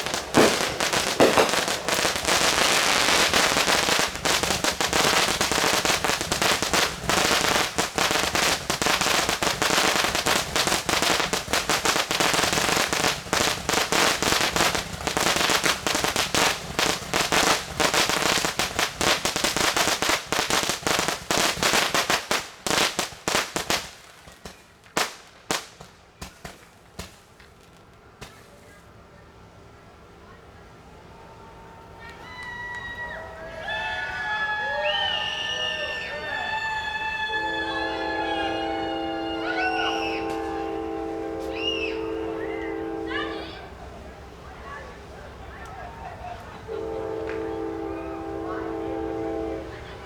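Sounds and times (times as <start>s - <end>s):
fireworks cracking and popping: 0.0s - 29.2s, 39.3s - 42.0s.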